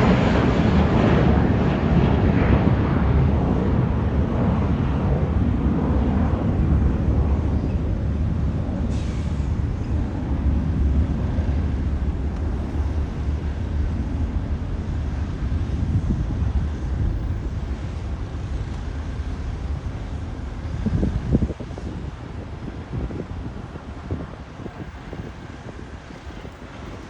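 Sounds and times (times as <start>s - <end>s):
jet engines rumbling: 0.0s - 27.0s
wind buffeting microphone: 0.0s - 27.0s.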